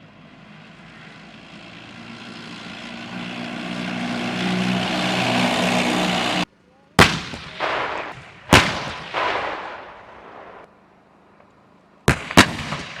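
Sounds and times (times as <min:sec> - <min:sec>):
rolling echo: 0:07.0 - 0:10.7
tank gun blasts: 0:07.0 - 0:10.7, 0:12.1 - 0:13.0.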